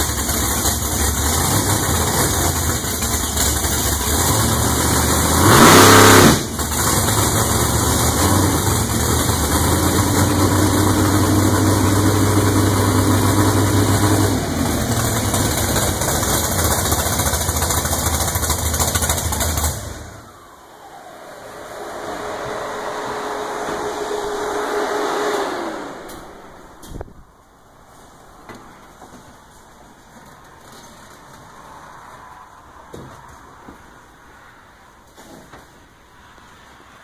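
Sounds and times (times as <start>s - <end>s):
drag car engine idling: 0.0s - 5.5s, 6.3s - 20.3s
engine revving: 0.0s - 27.1s
faint hum: 20.1s - 29.6s.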